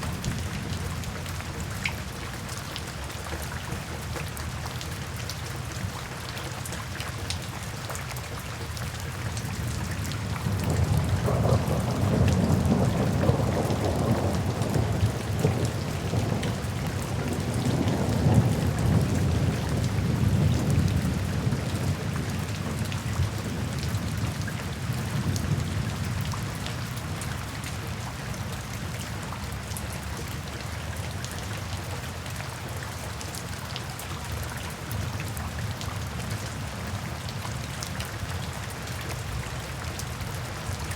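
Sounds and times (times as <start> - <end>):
steady rain falling: 0.0 - 40.9
low roll of thunder: 10.3 - 26.4.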